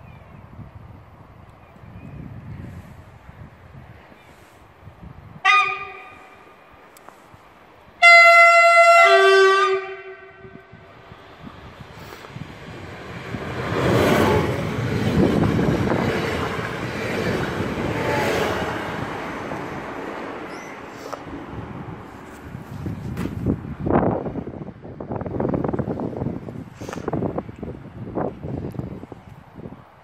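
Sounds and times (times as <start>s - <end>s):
two-tone train horn: 5.4s - 6.4s, 8.0s - 10.9s
train wheels rumbling on rails: 10.6s - 29.0s.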